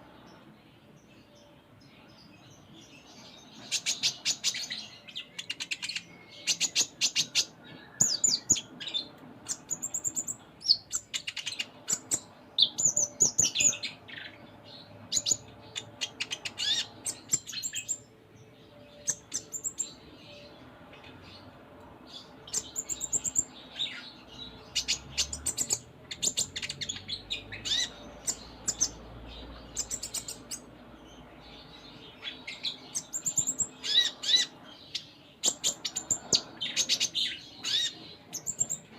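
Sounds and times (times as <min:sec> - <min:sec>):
sunbird singing: 0:00.0 - 0:38.9.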